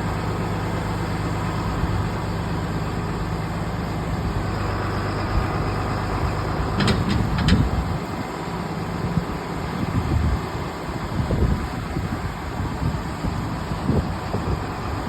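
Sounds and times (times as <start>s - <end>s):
tractor diesel engine idling: 0.0s - 15.0s
sharp knocks: 6.8s - 7.8s.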